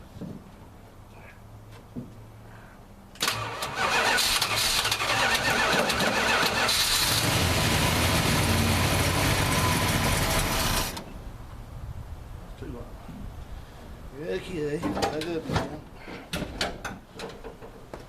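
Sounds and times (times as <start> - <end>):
car engine starter cranking: 3.2 - 8.0
car engine running loud: 5.9 - 11.0.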